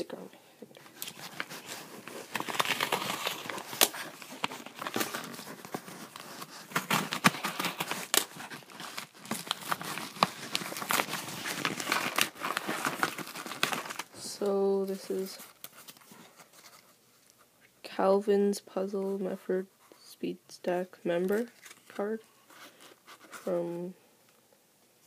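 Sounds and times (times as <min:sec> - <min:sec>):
packaging crinkling and tearing: 0:00.8 - 0:14.2, 0:14.8 - 0:17.0, 0:21.3 - 0:22.0.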